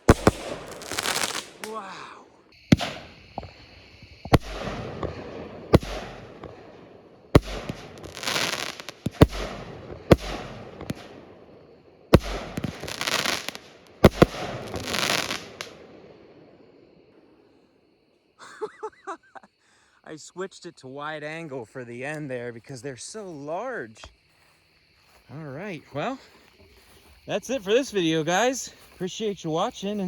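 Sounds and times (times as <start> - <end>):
crackling fizz: 0.0 - 1.8
firework bangs: 0.0 - 2.0, 2.6 - 16.6.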